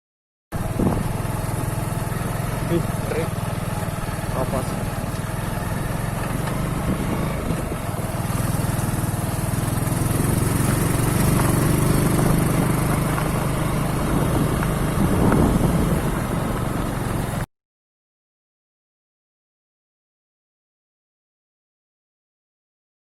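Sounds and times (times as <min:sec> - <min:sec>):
engine running: 0:00.6 - 0:17.5.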